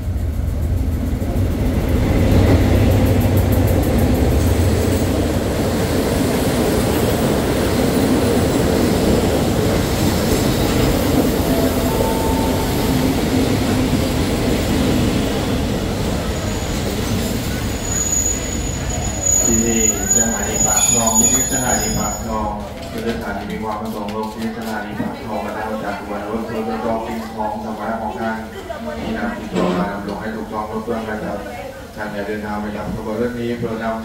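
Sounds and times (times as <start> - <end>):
train wheels rumbling on rails: 0.0 - 34.0
high wheel squeal: 10.2 - 13.4, 16.2 - 22.5.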